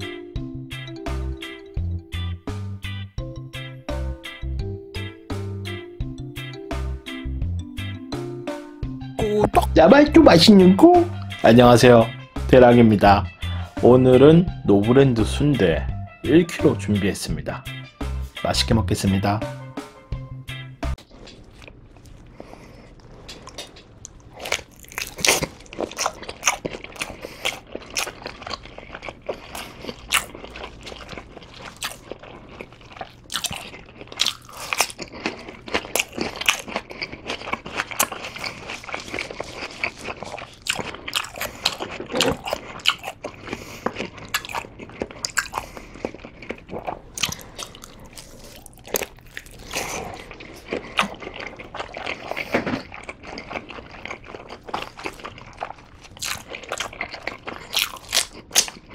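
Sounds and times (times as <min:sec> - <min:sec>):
biting and chewing sausage: 0:20.9 - 0:58.9.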